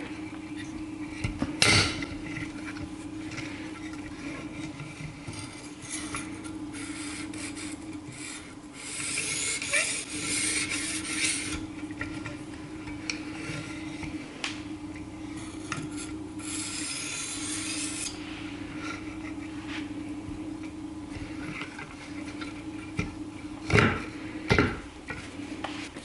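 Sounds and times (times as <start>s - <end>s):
knife scraping sharpening stone: 5.6s - 11.6s, 15.9s - 18.2s.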